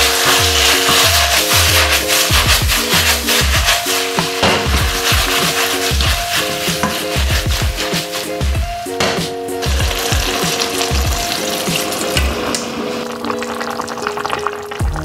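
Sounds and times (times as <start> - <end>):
food sizzling in a hot wok: 0.0 - 4.2, 9.7 - 14.3
background music with steady beat: 0.0 - 15.0
water pouring: 9.6 - 15.0.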